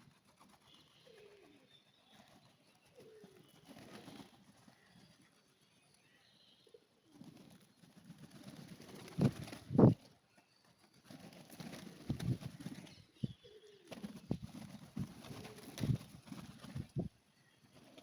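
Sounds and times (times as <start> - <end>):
pigeons cooing: 11.8 - 17.1.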